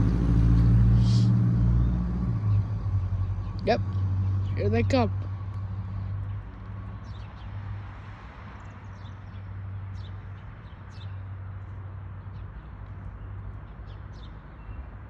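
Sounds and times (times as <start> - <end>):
small birds chirping: 1.0 - 15.0.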